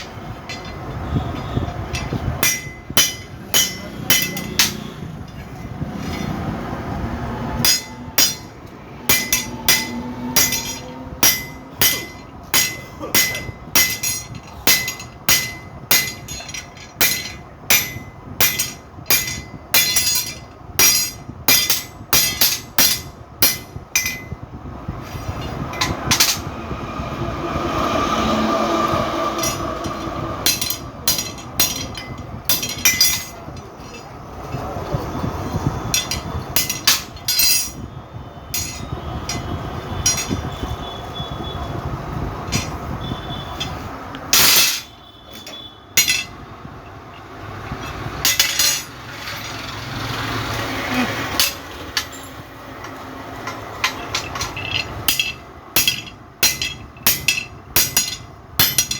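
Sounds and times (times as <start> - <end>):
steady humming: 0.0 - 46.5
metal struck ringing: 7.6 - 24.4.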